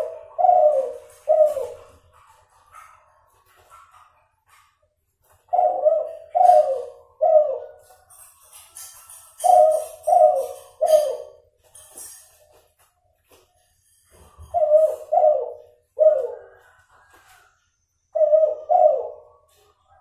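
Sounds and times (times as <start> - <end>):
dove cooing: 0.0 - 2.2, 5.4 - 7.9, 9.4 - 11.4, 14.4 - 17.4, 18.1 - 19.7.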